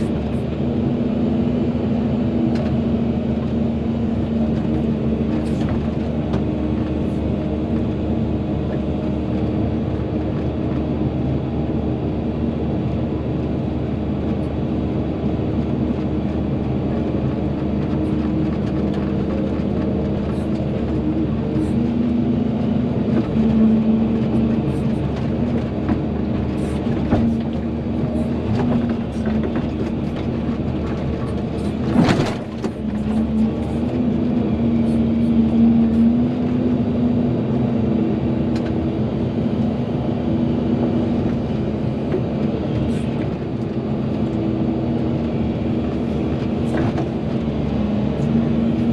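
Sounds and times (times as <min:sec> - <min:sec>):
excavator diesel engine running: 0:00.0 - 0:48.9
knocks and clanks of digging gear: 0:25.1 - 0:33.8.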